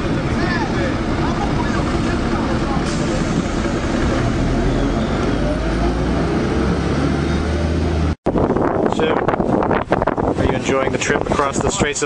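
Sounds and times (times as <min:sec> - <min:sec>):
vehicle engine revving: 0:00.0 - 0:08.2
traffic noise: 0:00.0 - 0:12.0.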